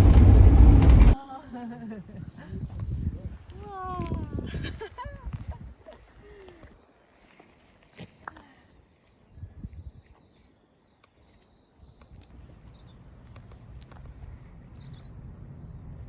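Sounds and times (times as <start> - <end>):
wind rumble on microphone: 0.0 - 1.2, 2.2 - 5.8, 9.4 - 10.1
insects buzzing: 8.7 - 16.0.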